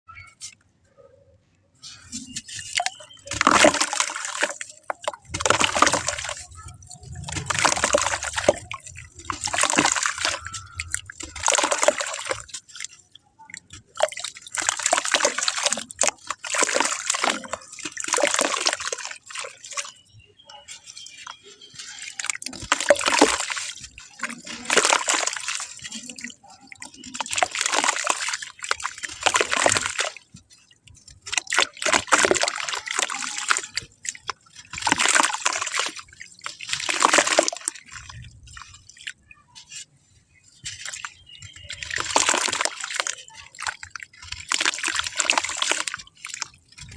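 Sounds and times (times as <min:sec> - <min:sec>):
clay crumbling: 0:01.8 - 0:13.0.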